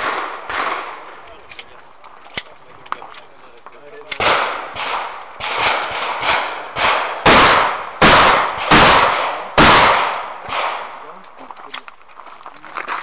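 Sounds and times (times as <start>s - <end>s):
shotgun shots echoing: 0.0s - 1.4s, 4.1s - 11.3s.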